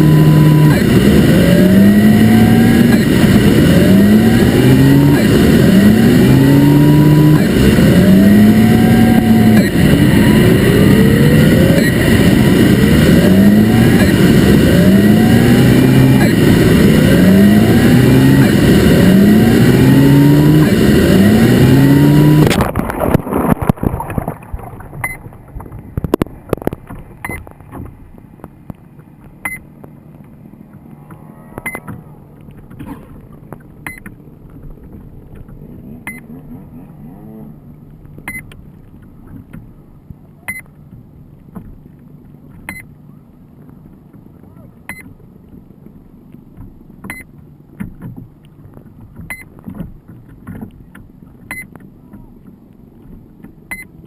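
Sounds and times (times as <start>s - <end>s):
quadcopter motors revving: 0.0s - 22.7s, 30.8s - 33.2s
short high beep: 31.6s - 31.9s.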